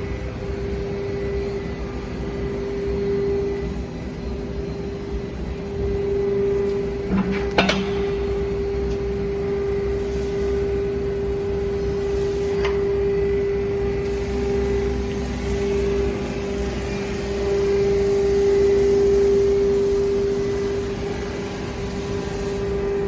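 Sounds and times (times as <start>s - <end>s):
hydraulic pump humming: 0.0s - 23.0s
metal clanking: 7.1s - 8.6s.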